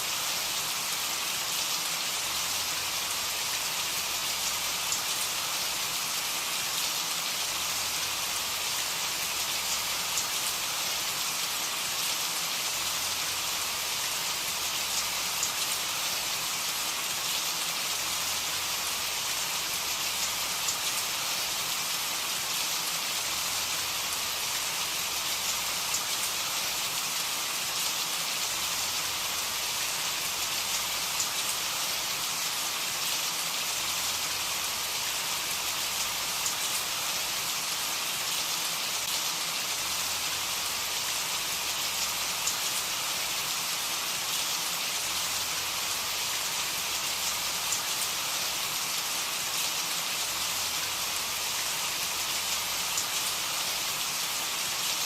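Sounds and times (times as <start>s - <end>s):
steady rain with pattering drops: 0.0s - 55.0s.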